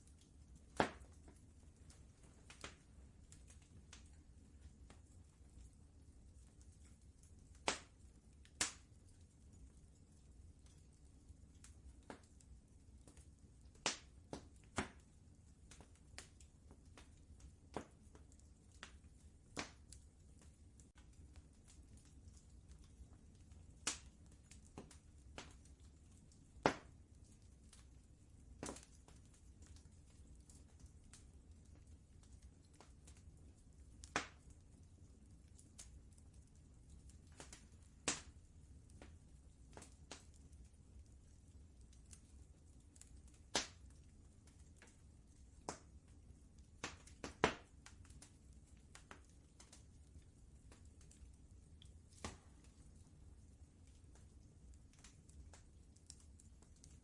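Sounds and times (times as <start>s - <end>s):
wood fire crackling and popping: 0.0s - 57.0s
sharp fire pops: 0.6s - 1.4s, 7.2s - 8.9s, 13.0s - 27.0s, 28.6s - 30.3s, 34.0s - 34.6s, 37.3s - 38.4s, 42.1s - 45.0s, 45.6s - 45.9s, 46.8s - 48.3s, 52.1s - 52.8s.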